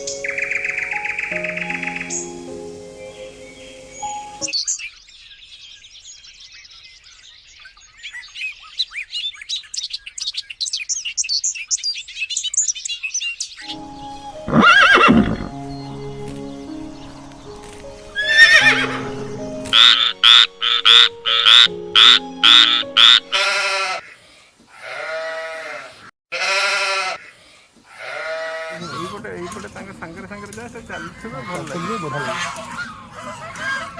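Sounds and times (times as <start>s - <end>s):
background music: 0.0s - 4.5s, 13.6s - 23.8s
high bird chirping: 0.0s - 23.6s
farm animal calls: 14.2s - 15.6s, 18.2s - 33.9s.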